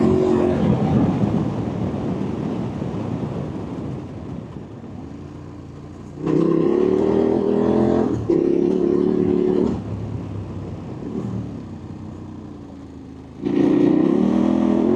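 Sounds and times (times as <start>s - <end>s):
motorcycle engine revving: 0.0s - 1.4s, 5.2s - 14.9s.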